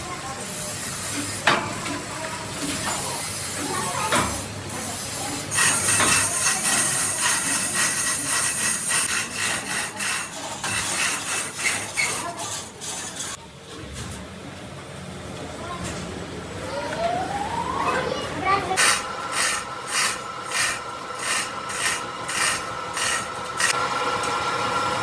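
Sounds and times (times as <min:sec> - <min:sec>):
tool scraping against metal: 0:04.8 - 0:13.4, 0:18.8 - 0:23.8.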